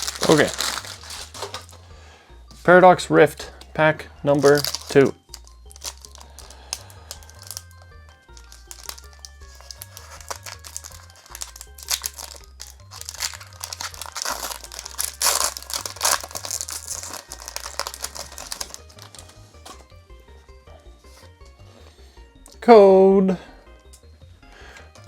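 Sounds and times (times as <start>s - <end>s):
foil wrapper tearing and crinkling: 0.0s - 1.8s, 4.4s - 19.4s.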